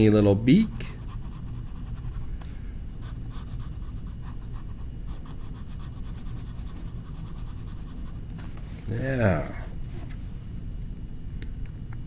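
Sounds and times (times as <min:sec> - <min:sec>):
steady low hum: 0:00.0 - 0:12.0
coloring tool scratching on paper: 0:00.6 - 0:02.3, 0:03.0 - 0:08.3.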